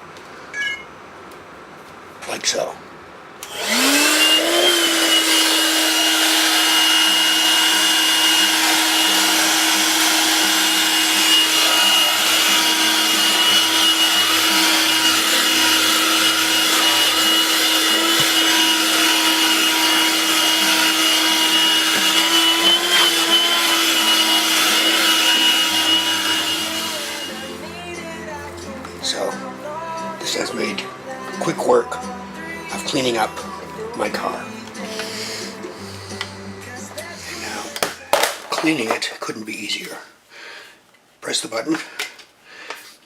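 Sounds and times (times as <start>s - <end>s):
handheld vacuum cleaner running: 3.4s - 27.7s.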